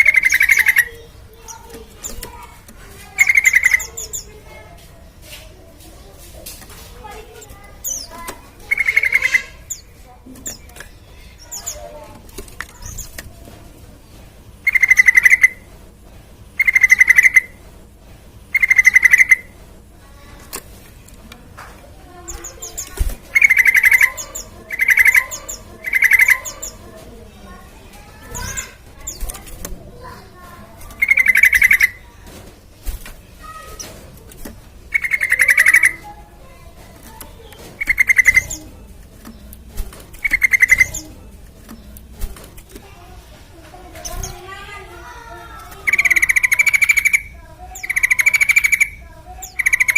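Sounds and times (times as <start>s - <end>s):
bird singing fast trills: 0.0s - 2.4s, 3.1s - 4.4s, 7.3s - 10.8s, 14.6s - 15.6s, 16.6s - 17.6s, 18.5s - 19.5s, 22.3s - 26.9s, 28.0s - 29.4s, 30.1s - 32.1s, 34.9s - 36.1s, 37.2s - 38.7s, 40.2s - 42.0s, 45.6s - 49.9s.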